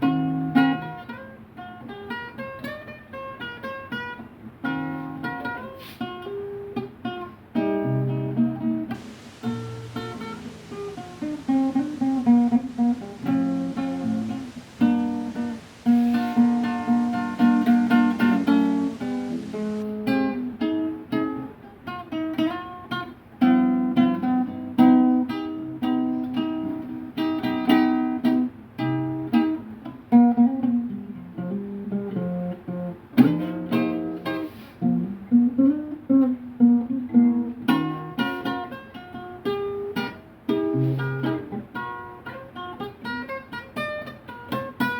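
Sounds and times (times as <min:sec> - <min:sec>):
solo guitar improvisation: 0:00.0 - 0:44.9.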